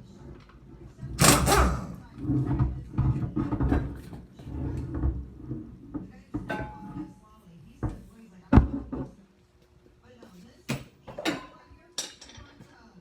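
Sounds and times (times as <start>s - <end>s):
metallic clatter of tools: 11.2s - 12.8s.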